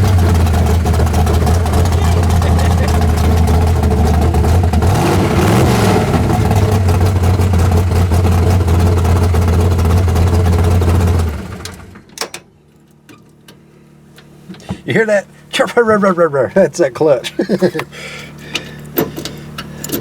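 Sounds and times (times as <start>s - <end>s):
car engine revving: 0.0s - 11.8s
car engine idling: 0.0s - 12.1s, 12.7s - 20.0s.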